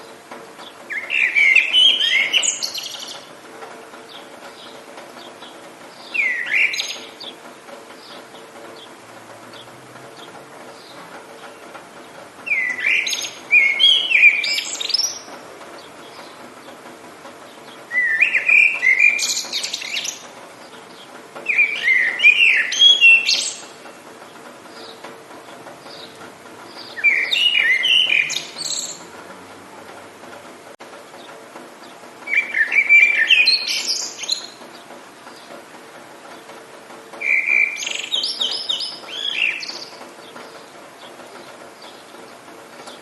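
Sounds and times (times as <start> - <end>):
faint rain hiss: 0.0 - 43.0
songbird warbling: 0.6 - 3.3, 4.1 - 7.4, 8.0 - 16.8, 17.5 - 24.0, 25.8 - 29.1, 32.3 - 35.5, 37.2 - 42.1.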